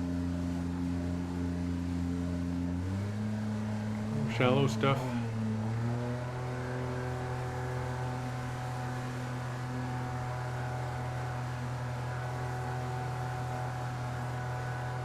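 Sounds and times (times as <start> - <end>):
jet boat motor humming: 0.0 - 15.0.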